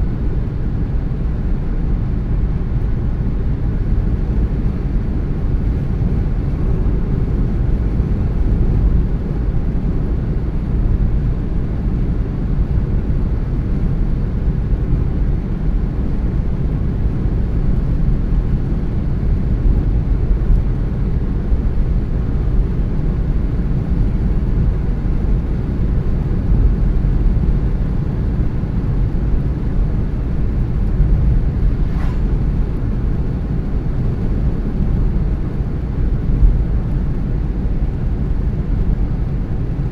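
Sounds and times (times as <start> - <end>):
car driving road and engine noise: 0.0 - 39.9.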